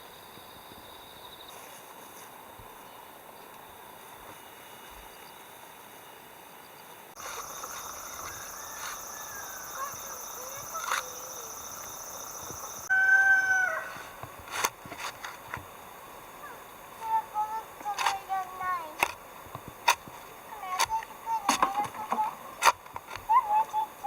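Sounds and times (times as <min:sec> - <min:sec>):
rooster crowing: 0:08.1 - 0:10.2, 0:12.8 - 0:14.2.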